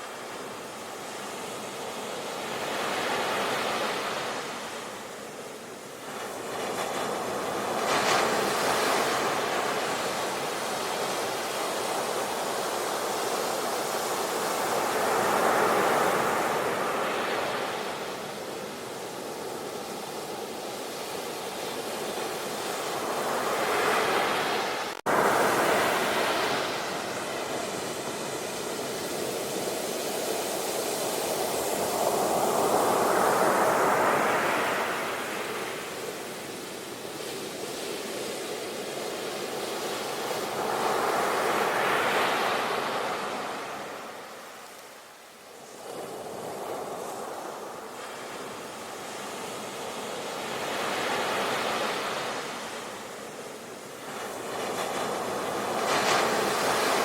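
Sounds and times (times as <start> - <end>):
ocean surf breaking: 6.1 - 44.9, 45.6 - 57.0.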